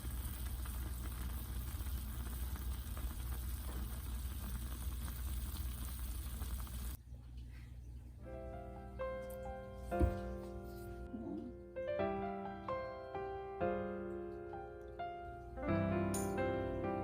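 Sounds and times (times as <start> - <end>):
meat sizzling in a hot pot: 0.0 - 7.0
piano music: 8.2 - 17.0.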